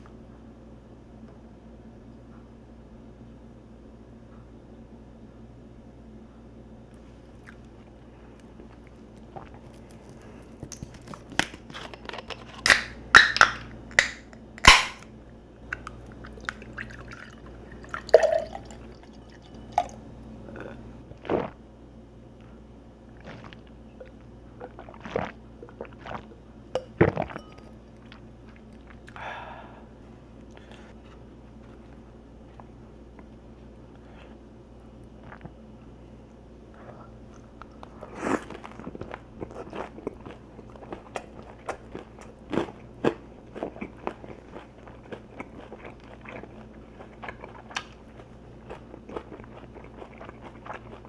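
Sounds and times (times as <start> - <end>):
drink being poured: 15.8 - 20.1
glasses and dishes clinking: 17.9 - 20.0, 26.8 - 27.7.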